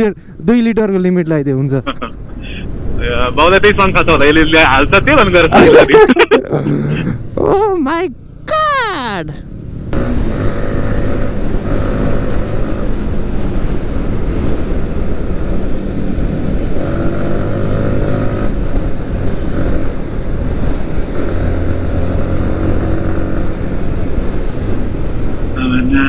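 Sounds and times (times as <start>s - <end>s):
motorcycle engine cruising: 9.4s - 25.6s.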